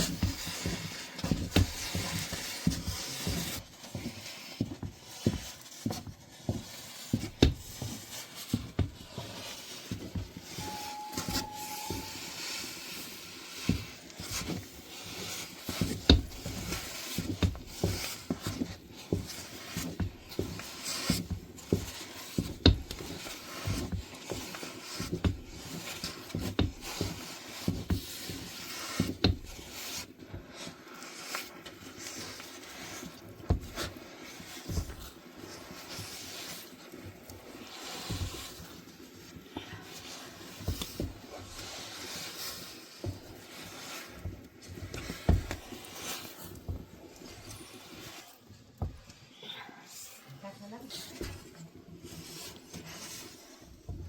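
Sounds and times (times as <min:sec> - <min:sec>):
brief high tone: 0:10.6 - 0:12.4.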